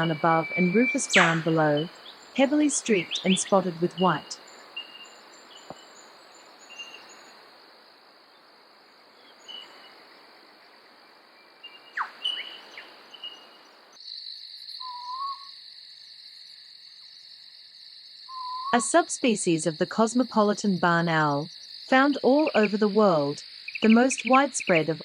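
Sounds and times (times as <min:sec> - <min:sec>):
owl calling: 0:00.0 - 0:05.8, 0:11.9 - 0:13.5, 0:14.8 - 0:15.5, 0:18.3 - 0:18.8
crickets and insects droning: 0:00.0 - 0:25.0
owl hooting note: 0:14.8 - 0:15.5, 0:18.3 - 0:18.8.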